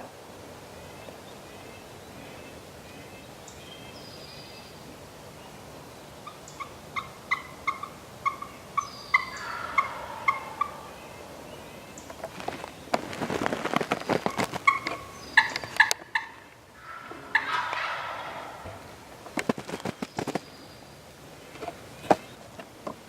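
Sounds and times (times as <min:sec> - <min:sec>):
wild turkeys calling: 0:06.2 - 0:12.4, 0:13.7 - 0:20.4.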